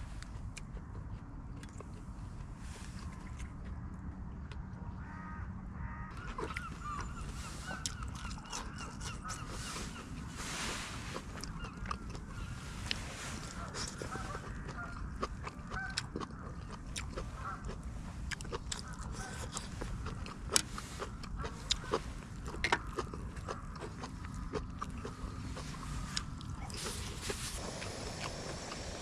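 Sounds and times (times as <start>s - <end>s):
crunchy food eating: 0.0s - 4.7s, 6.1s - 29.0s
low wind rumble: 0.0s - 29.0s
geese honking: 13.4s - 15.0s, 15.7s - 16.0s.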